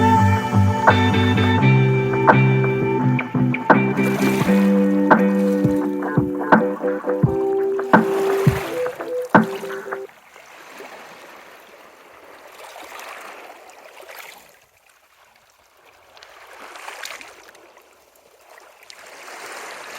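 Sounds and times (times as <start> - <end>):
sea waves washing on shore: 3.1 - 14.5.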